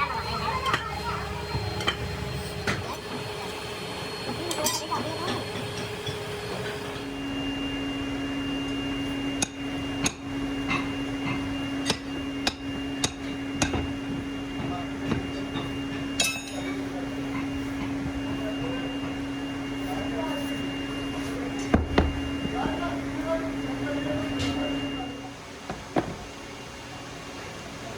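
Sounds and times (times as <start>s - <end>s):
workshop machinery humming: 0.0s - 27.9s
sharp metallic knocks and clanks: 9.4s - 14.2s, 21.7s - 22.6s.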